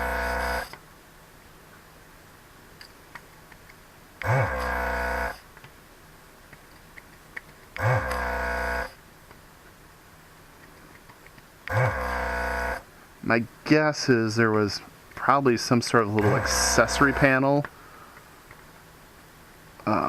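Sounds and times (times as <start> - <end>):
desoldering vacuum pump humming: 0.0 - 0.8, 4.2 - 5.4, 7.8 - 8.9, 11.6 - 12.9, 16.1 - 18.0.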